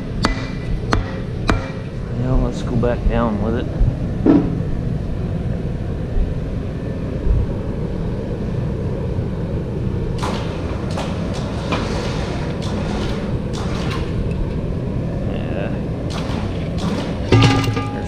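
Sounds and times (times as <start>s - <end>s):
steady low drone: 0.0s - 18.0s
sharp metal knocks and clinks: 17.3s - 18.0s.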